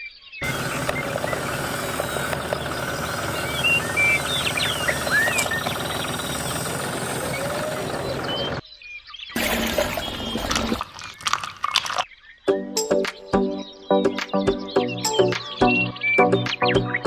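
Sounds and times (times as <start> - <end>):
engine pulsing rumble: 0.4 - 8.6, 9.4 - 12.0.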